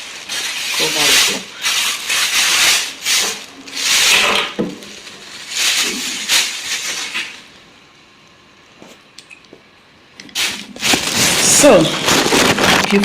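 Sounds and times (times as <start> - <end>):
dust cover rustling: 0.0 - 7.4, 10.4 - 13.0.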